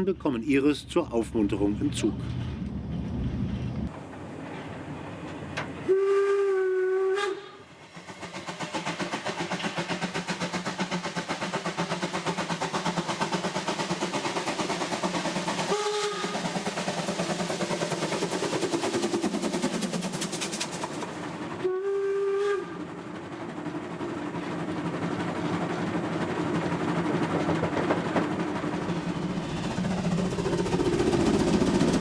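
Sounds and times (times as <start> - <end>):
steam whistle blasts: 5.8 - 7.9, 15.7 - 16.6, 21.6 - 22.9
steam locomotive exhaust chuffing: 5.8 - 32.0.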